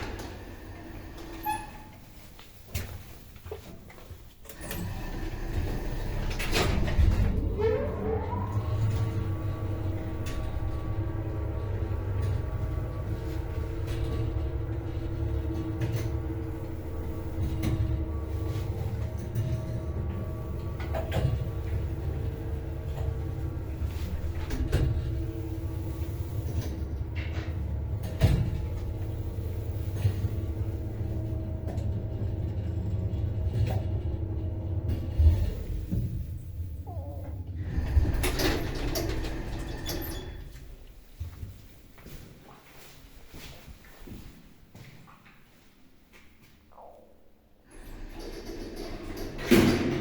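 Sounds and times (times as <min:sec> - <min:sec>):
lift motor whine: 0:04.6 - 0:35.8
low hum: 0:06.2 - 0:39.6.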